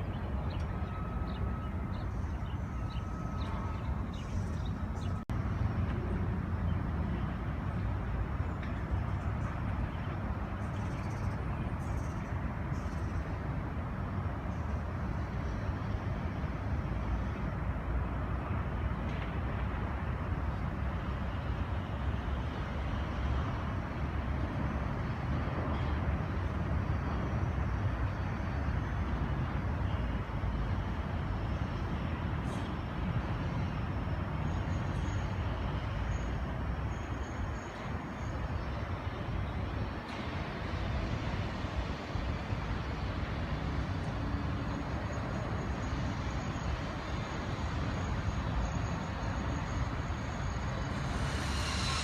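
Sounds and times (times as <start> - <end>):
city traffic rumble: 0.0 - 52.0.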